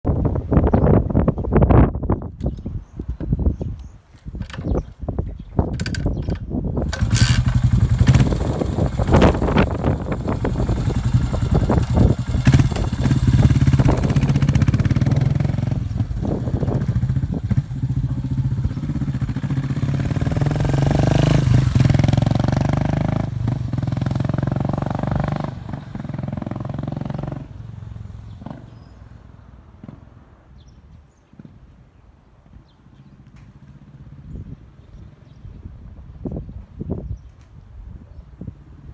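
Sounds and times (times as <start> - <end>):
sharp clatter: 5.6 - 18.4
motorcycle engine exhaust beat: 6.8 - 27.7.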